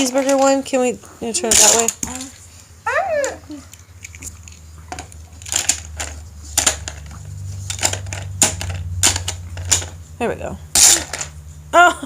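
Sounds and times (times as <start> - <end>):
plastic toy cars clicking: 4.0 - 10.0, 10.8 - 11.4.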